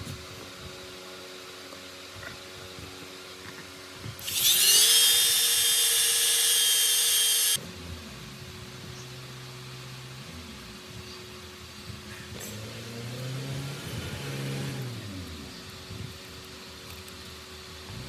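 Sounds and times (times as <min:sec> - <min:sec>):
power tool motor whining: 0:04.2 - 0:07.6.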